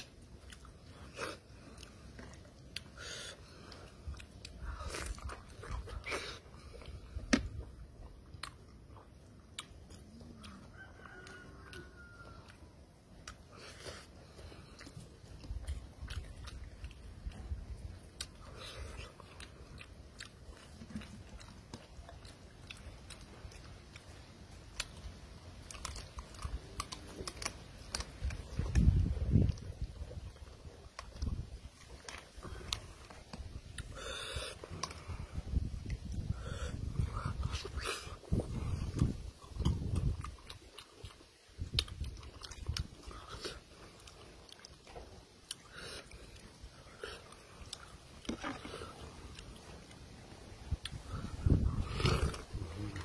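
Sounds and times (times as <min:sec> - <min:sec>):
person chewing: 0:00.0 - 0:53.0
sharp mouth clicks: 0:30.9 - 0:43.7.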